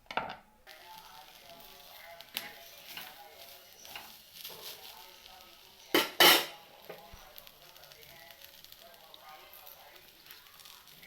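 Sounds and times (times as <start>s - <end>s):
faint background music: 0.0s - 11.0s
utensils clattering against a pot: 5.9s - 6.6s.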